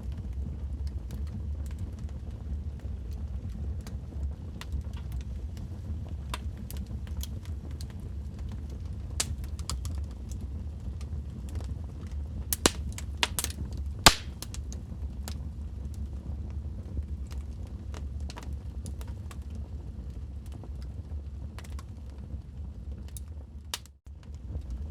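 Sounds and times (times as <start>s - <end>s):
logs crackling in fireplace: 0.8s - 24.7s
sharp pops and snaps: 12.6s - 14.6s.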